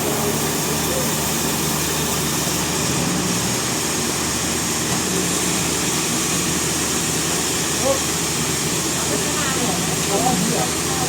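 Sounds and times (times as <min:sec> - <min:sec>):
sawmill engine hum: 0:00.0 - 0:11.0.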